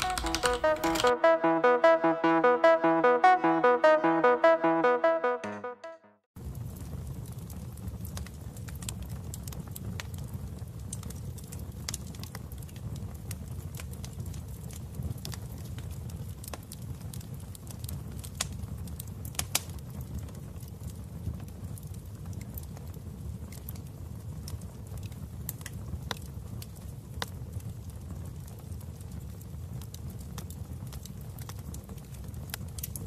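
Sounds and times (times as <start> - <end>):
wood fire crackling: 6.4 - 33.0
fire pops and snaps: 6.6 - 33.0.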